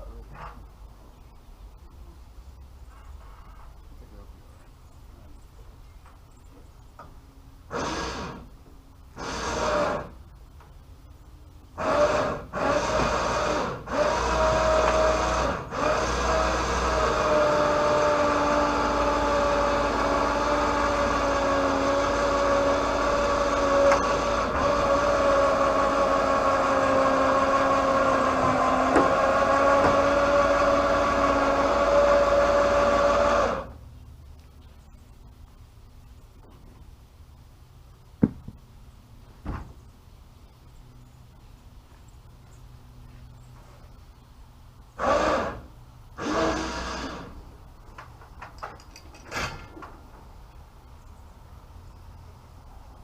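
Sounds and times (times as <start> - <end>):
electric hoist motor humming: 11.7 - 33.8, 44.9 - 48.3.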